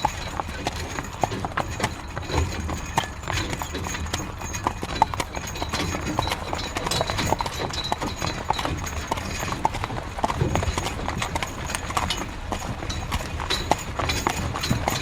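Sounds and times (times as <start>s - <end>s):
continuous low rumble: 0.0s - 15.0s
horse hooves clip-clopping: 0.0s - 15.0s.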